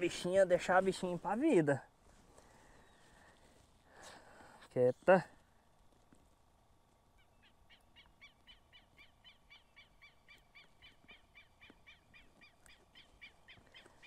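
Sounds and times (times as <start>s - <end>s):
faint bird calling: 2.3s - 4.6s, 7.0s - 14.0s.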